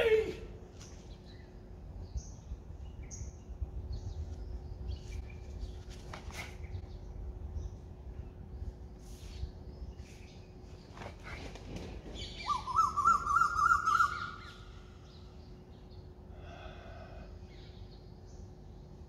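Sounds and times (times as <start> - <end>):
faint steady hum: 0.0 - 19.0
bird warbling call: 12.3 - 14.9.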